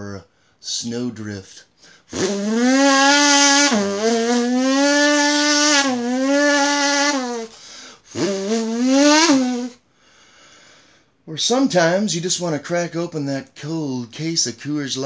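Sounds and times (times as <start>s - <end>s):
snowmobile engine revving high: 2.1s - 9.8s.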